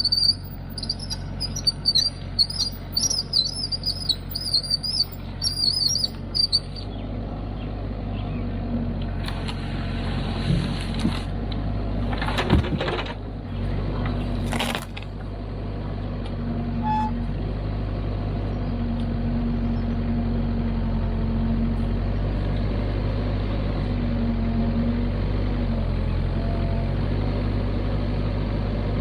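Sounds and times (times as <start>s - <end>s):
excavator diesel engine running: 0.0s - 29.0s
metallic knocks and clanks: 12.1s - 13.2s.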